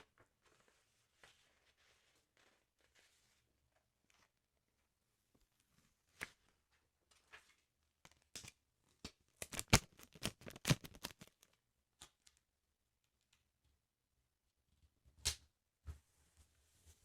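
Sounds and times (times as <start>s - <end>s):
paper and stickers crackling: 9.4s - 11.6s.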